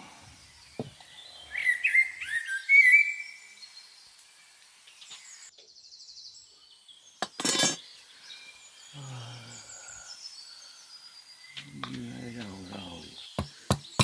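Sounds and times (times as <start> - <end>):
birds chirping: 6.3 - 14.0.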